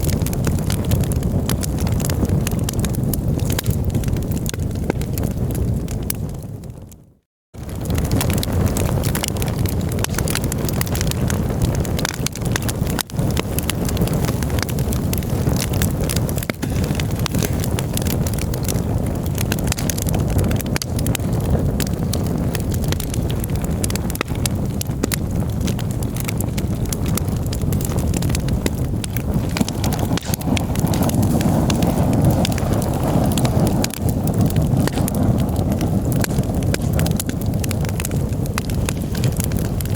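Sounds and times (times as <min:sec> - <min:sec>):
wood crackling and popping: 0:00.0 - 0:39.9
low rumble: 0:23.0 - 0:38.1.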